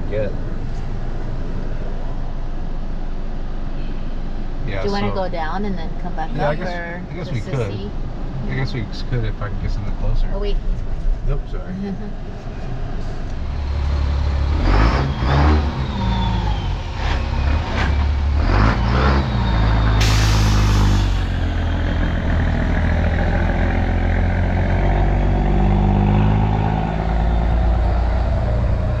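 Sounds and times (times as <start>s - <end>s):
car engine running: 0.0s - 18.8s
road noise: 0.0s - 29.0s
short sharp hiss: 20.0s - 21.3s.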